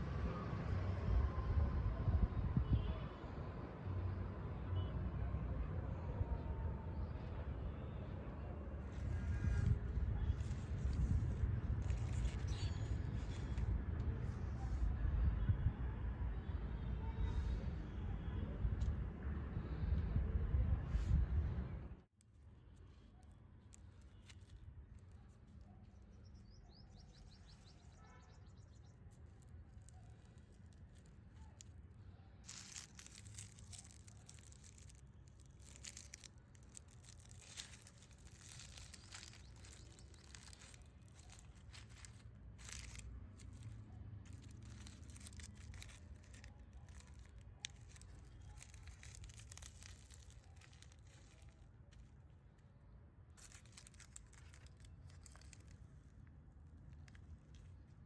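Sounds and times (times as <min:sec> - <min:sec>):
rustling and crinkling material: 0:08.7 - 0:15.0, 0:22.0 - 0:58.0
bird chirp: 0:25.8 - 0:29.1.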